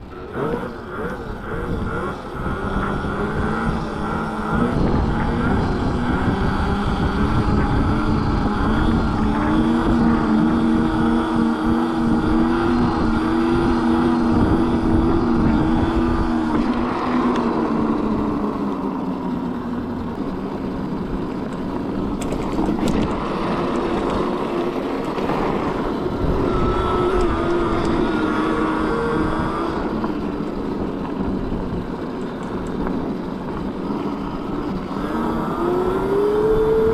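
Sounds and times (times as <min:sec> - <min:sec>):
mini bike motor running: 0:00.0 - 0:36.9
wind and road noise: 0:00.0 - 0:36.9.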